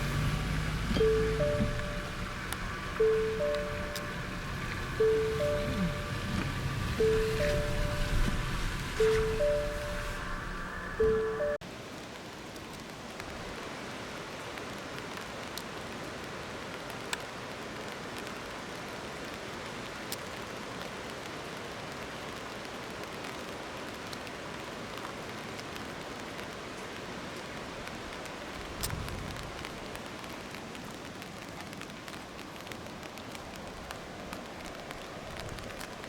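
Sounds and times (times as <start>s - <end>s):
faint ticks: 0.9s - 8.4s.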